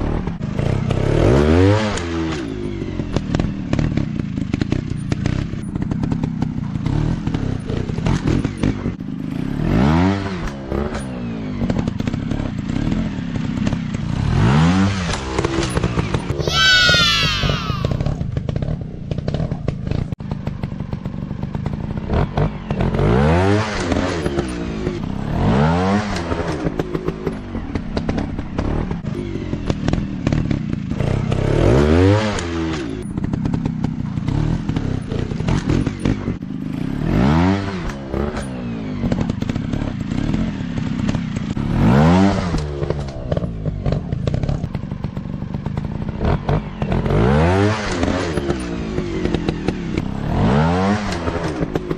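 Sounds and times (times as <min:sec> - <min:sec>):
dirt bike engines revving: 0:12.0 - 0:18.2.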